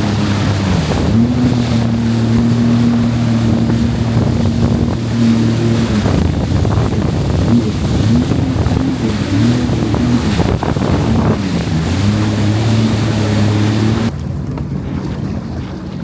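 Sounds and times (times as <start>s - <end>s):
jet ski engine running: 0.0s - 16.0s
rushing wind and water: 0.0s - 16.0s.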